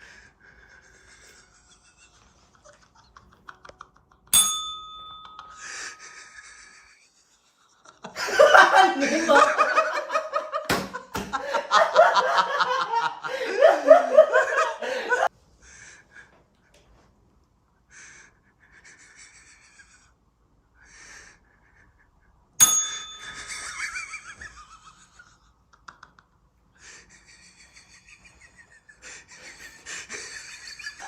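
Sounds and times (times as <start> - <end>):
person breathing hard: 0.0 - 1.8, 5.6 - 6.9, 13.2 - 14.0, 14.8 - 16.8, 17.8 - 22.3
sharp ringing ding: 4.3 - 5.7, 22.6 - 23.7.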